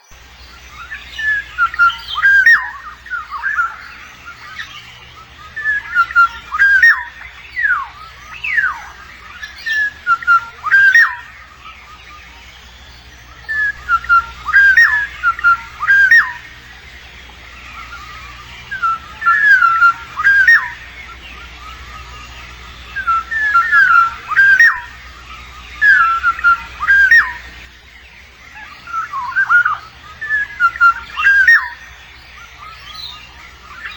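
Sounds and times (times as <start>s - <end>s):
oriole fluty whistles: 25.8s - 27.4s.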